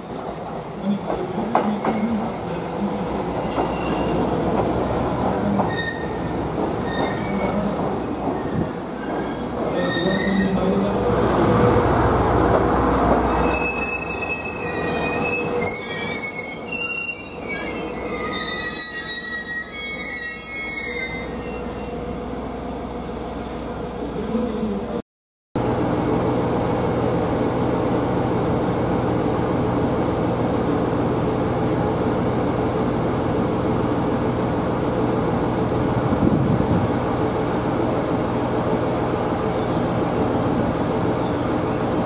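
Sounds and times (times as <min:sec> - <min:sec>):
train wheels rumbling over rails: 0:00.2 - 0:16.3
high-pitched wheel squeal: 0:05.6 - 0:10.7, 0:13.3 - 0:22.0.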